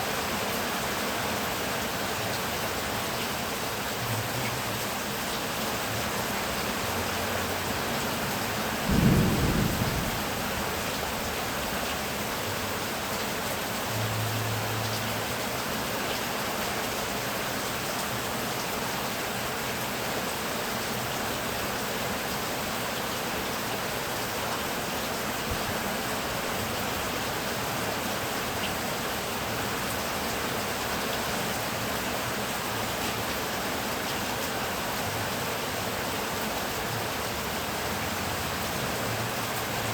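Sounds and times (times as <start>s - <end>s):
heavy rain falling: 0.0s - 39.9s
deep thunderclap: 8.8s - 11.8s.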